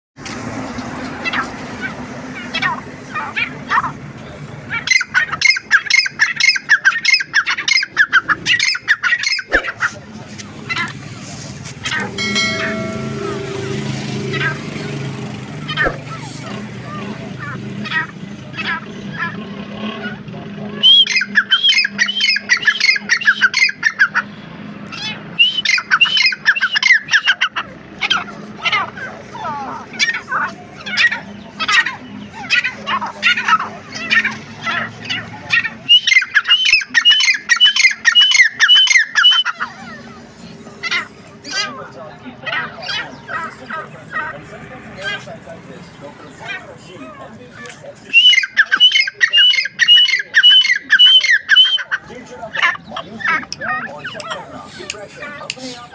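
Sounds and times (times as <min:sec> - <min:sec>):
francolin calling: 0:11.9 - 0:14.6, 0:35.1 - 0:40.1, 0:48.1 - 0:52.0
low hum: 0:11.9 - 0:14.8.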